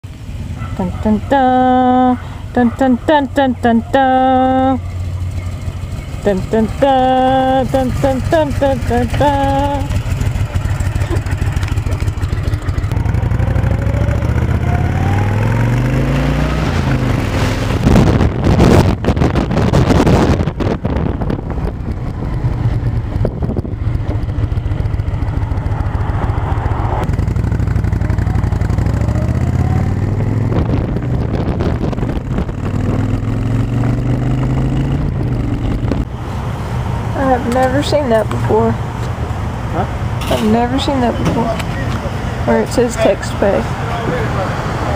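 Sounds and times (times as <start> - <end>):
motorcycle engine accelerating: 3.0 - 44.3
wind noise on microphone: 16.3 - 36.2.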